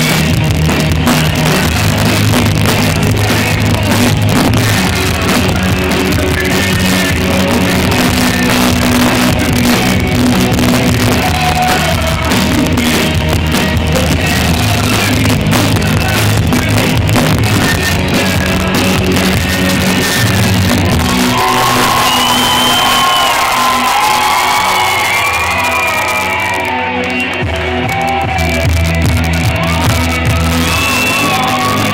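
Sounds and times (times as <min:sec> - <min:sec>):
live rock band playing: 0:00.0 - 0:31.9
person singing and shouting: 0:02.6 - 0:13.1
crowd whoops and shouts: 0:20.7 - 0:31.9.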